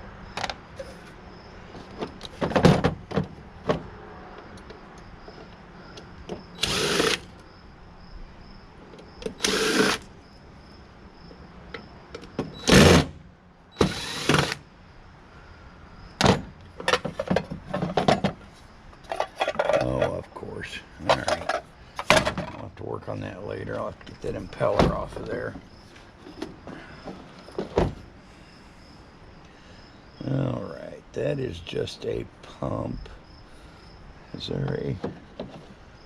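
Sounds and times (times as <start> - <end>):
cordless drill bursts: 6.6 - 7.3, 9.3 - 10.1, 12.6 - 13.1, 13.8 - 14.6.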